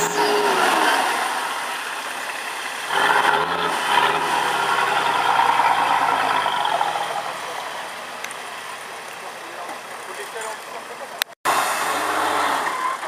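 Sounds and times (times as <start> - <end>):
off-road engine revving: 0.0 - 2.0, 2.8 - 8.1, 11.5 - 13.0.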